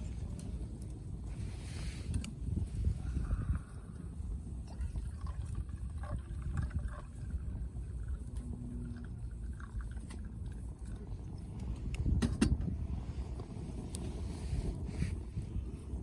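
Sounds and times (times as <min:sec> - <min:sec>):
wood fire crackling: 0:00.0 - 0:06.5, 0:12.8 - 0:16.0
wind buffeting microphone: 0:00.0 - 0:16.0.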